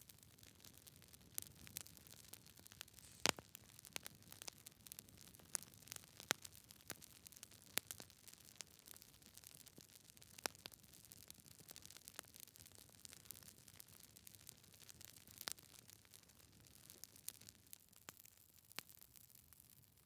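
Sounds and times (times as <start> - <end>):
faint steady hiss: 0.0 - 7.0
logs crackling and popping: 0.0 - 19.4.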